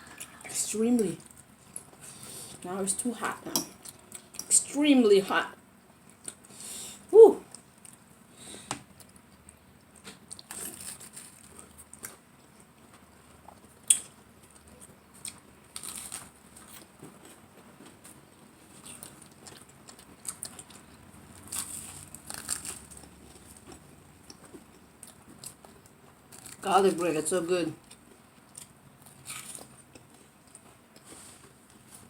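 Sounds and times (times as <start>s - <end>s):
chewing and biting: 13.4s - 26.6s, 27.8s - 31.9s.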